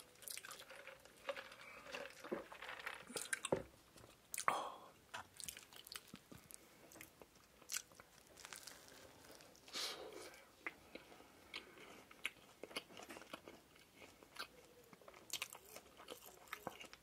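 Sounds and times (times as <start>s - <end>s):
chewing and biting burger: 7.6s - 9.6s.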